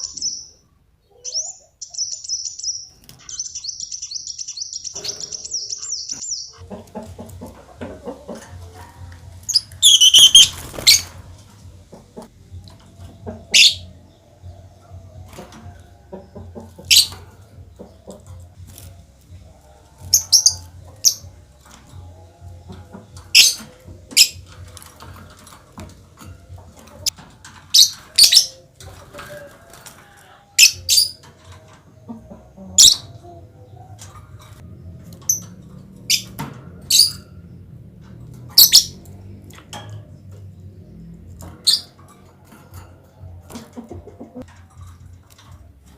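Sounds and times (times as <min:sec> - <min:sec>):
small birds giving shrill calls: 0:00.0 - 0:06.7, 0:09.4 - 0:11.2, 0:13.4 - 0:14.0, 0:16.8 - 0:17.2.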